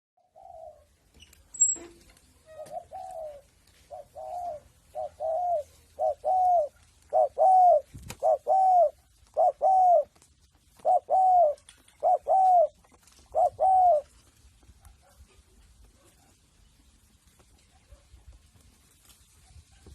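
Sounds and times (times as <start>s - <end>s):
dove cooing: 0.2s - 0.9s, 2.4s - 14.3s.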